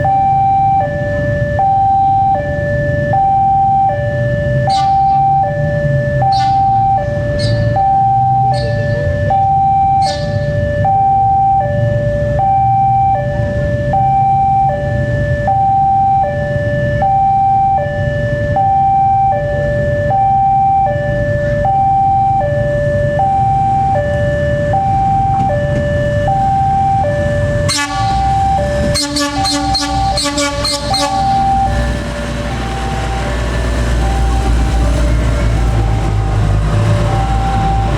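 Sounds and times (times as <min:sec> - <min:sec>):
diesel railcar rumble: 0:00.0 - 0:37.9
two-tone railway warning alarm: 0:00.0 - 0:37.9
train horn: 0:27.7 - 0:31.6.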